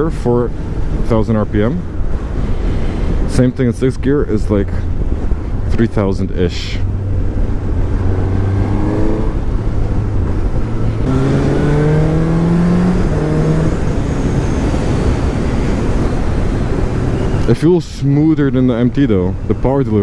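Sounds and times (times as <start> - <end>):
motorcycle engine accelerating: 6.8 - 17.5.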